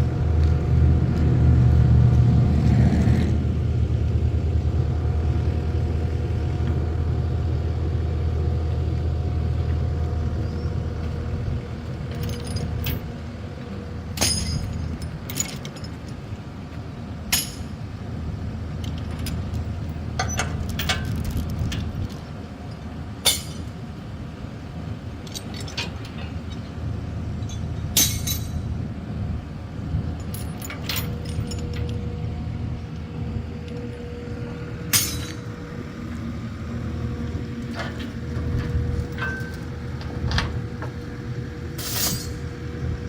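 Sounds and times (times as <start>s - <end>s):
vehicle engine rumbling: 0.0s - 43.0s
sharp metallic clinks: 14.2s - 16.0s, 27.4s - 28.7s, 34.9s - 35.5s.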